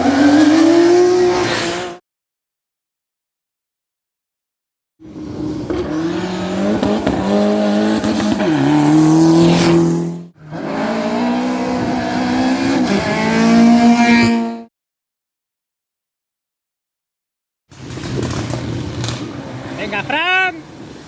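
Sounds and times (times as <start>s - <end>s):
rally car engine under load: 5.0s - 14.6s, 17.7s - 21.0s.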